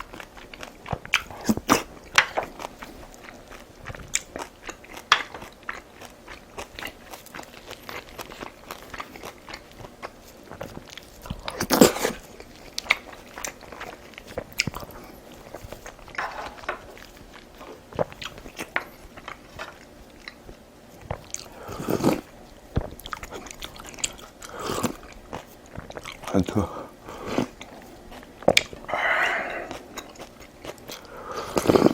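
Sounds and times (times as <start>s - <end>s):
person chewing food: 0.0s - 31.9s
loud mouth noises: 28.5s - 30.0s.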